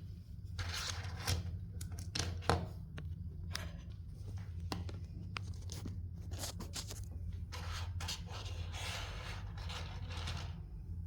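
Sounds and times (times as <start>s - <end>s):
steady low hum: 0.0s - 11.0s
packaging rustling and scraping: 5.4s - 7.1s.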